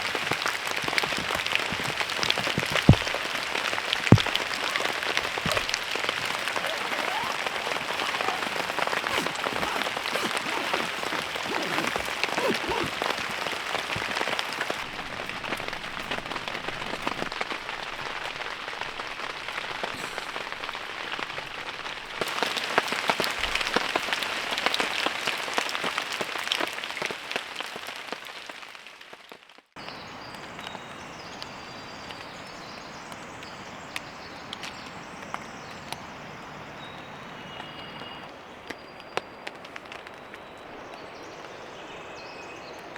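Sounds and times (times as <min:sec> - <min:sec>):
heavy rain falling: 0:00.0 - 0:28.1.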